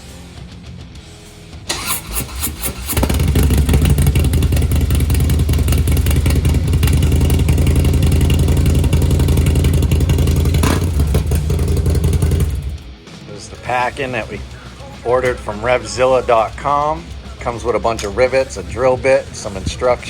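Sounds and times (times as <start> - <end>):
motorcycle starter cranking: 1.7 - 12.9
loud motorcycle engine running: 1.7 - 13.0.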